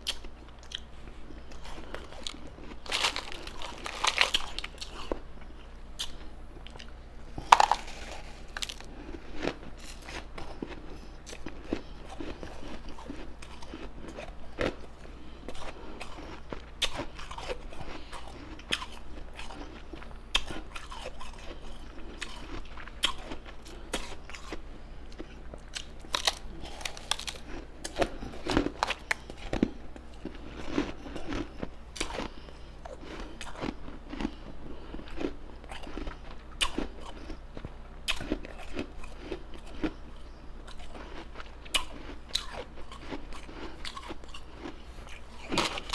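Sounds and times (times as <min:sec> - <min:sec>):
ice crunching between teeth: 0:01.4 - 0:14.8, 0:25.2 - 0:32.3, 0:38.1 - 0:45.9.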